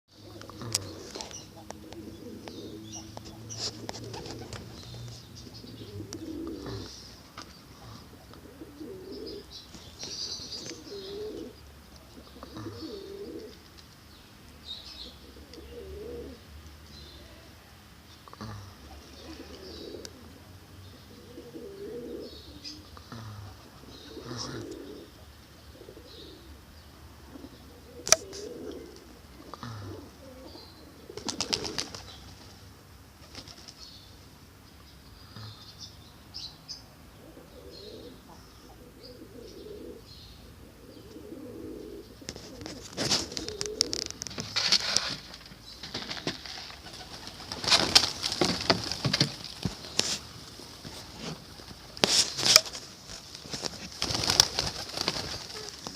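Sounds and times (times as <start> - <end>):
pigeons cooing: 0.1 - 13.8, 14.9 - 16.5, 18.2 - 32.5, 37.1 - 45.2, 45.9 - 55.9
small birds chirping: 0.1 - 32.7, 33.3 - 44.6, 45.2 - 55.9.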